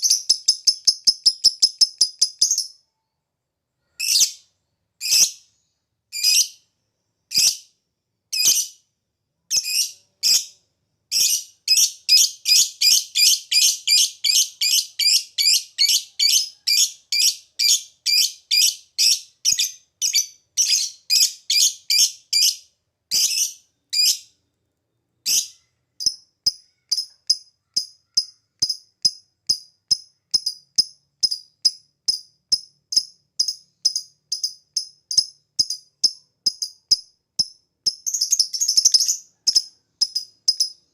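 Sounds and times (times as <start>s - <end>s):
lovebird clipped ticking calls: 0.0s - 2.8s, 26.0s - 40.8s
lovebird calling shrilly: 11.1s - 24.3s.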